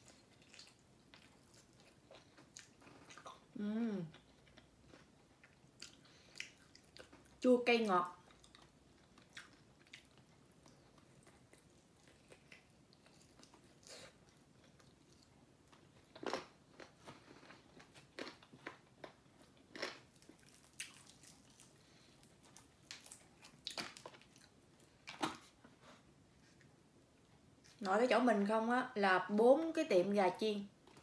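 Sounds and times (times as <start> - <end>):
crunchy chewing: 8.2 - 25.4.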